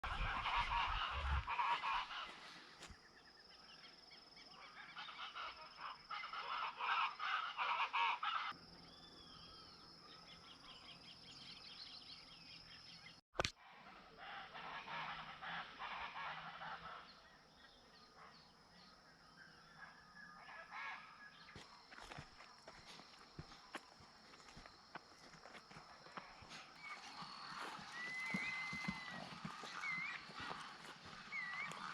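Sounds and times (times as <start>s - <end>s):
flock of water birds calling: 26.1s - 31.9s.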